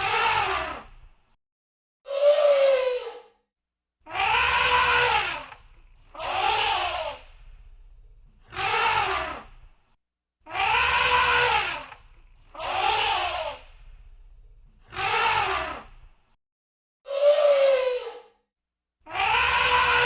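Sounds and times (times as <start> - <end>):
elephant trumpeting: 4.1 - 7.2, 10.5 - 13.6, 19.1 - 20.0.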